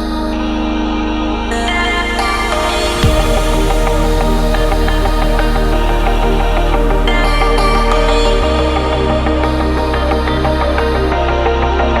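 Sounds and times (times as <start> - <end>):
falling sweep: 1.5 - 9.0
electronic dance music: 1.6 - 12.0
heavy bass beat: 1.7 - 12.0.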